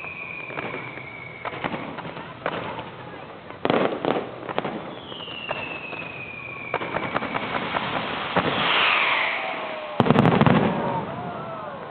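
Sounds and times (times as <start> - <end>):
firework falling whistle: 0.0 - 1.8, 4.6 - 11.9
firework hiss: 0.0 - 11.2
firework cracks and bangs: 0.0 - 11.9.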